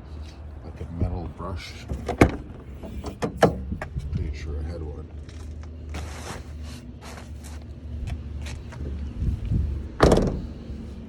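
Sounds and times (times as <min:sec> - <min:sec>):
steady low hum: 0:00.0 - 0:11.0
loud clunk: 0:10.0 - 0:10.5.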